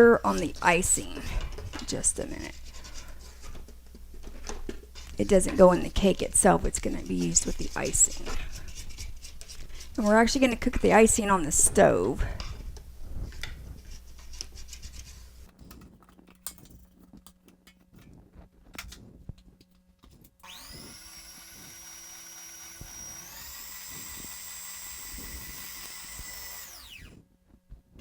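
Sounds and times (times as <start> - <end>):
electric mixer motor whine: 20.4 - 27.2.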